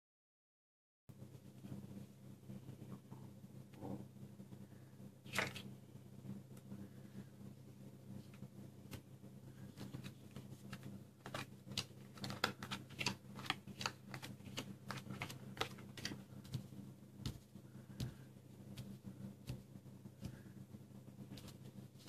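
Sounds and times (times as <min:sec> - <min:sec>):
steady low hum: 0:01.1 - 0:22.0
cards snapping and tapping: 0:11.2 - 0:17.4.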